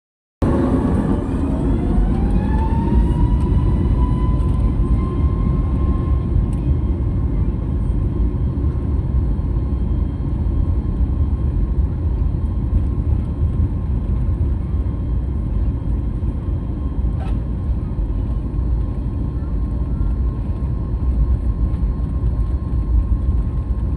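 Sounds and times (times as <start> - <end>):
heavy continuous rumble: 0.4 - 23.9
jet engines whining: 0.4 - 23.9.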